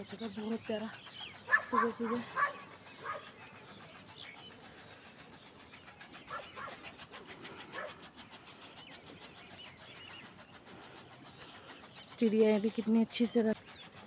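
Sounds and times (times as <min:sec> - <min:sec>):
birds chirping faintly: 0:00.0 - 0:14.0.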